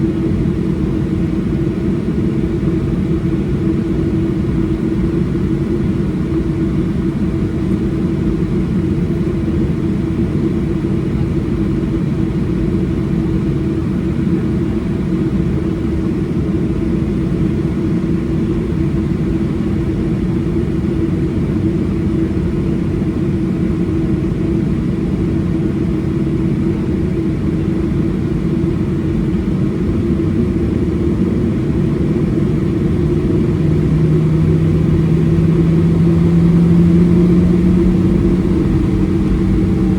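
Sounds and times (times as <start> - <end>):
jet engines from inside cabin: 0.0 - 39.9
lower engine tone: 29.7 - 39.9.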